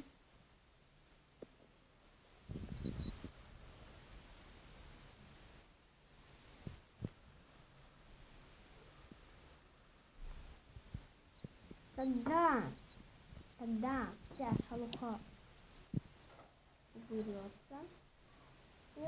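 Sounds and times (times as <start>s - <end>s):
thin high tone: 6.2s - 9.5s, 10.3s - 19.0s.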